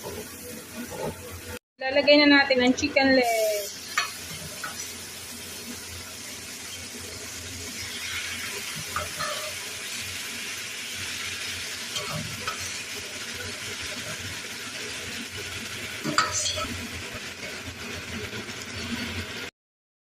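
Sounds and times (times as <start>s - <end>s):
chicken feet sizzling in fat: 2.9s - 19.5s.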